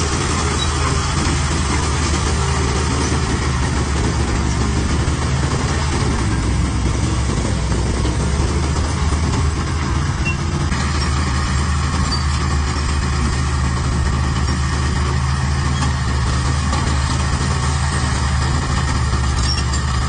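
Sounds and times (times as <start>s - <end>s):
heavy diesel engine drone: 0.0s - 20.0s
high-pitched mechanical noise: 9.9s - 13.3s.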